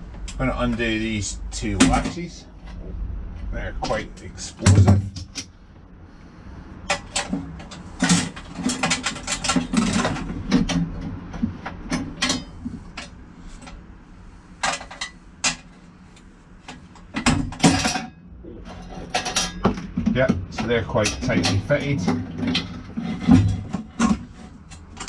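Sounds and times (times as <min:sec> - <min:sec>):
metal latches clicking and rattling: 0:06.8 - 0:13.8.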